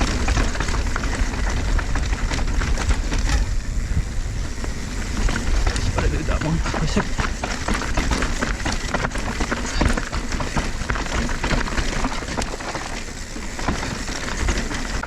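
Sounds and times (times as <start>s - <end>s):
heavy low rumble: 0.0s - 11.0s
bike rattling: 0.0s - 15.0s
bike tyres crunching over dirt: 0.0s - 15.0s.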